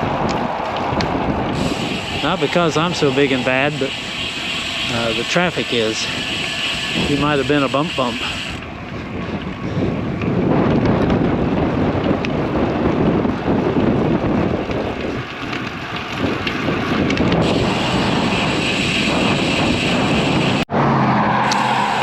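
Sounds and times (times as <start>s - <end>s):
road traffic noise: 0.0s - 10.4s, 15.2s - 22.0s
wind buffeting microphone: 0.0s - 20.7s.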